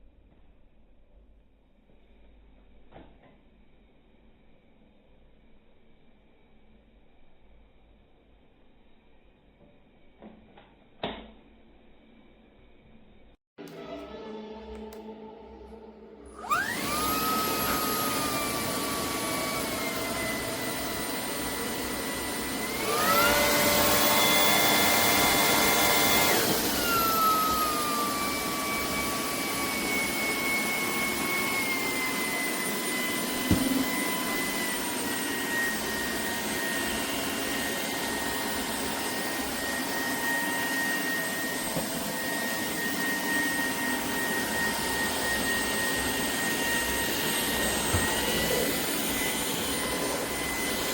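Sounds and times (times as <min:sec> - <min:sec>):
vacuum motor whining: 0:13.6 - 0:50.9.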